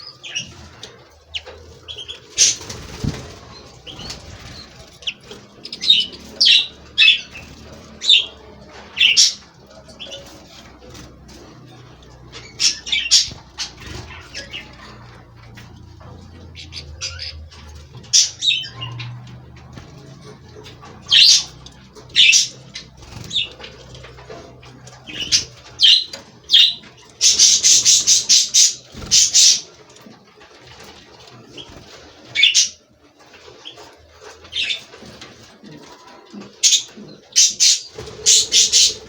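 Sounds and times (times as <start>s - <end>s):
finches chirping: 0.0s - 29.8s, 36.6s - 39.0s.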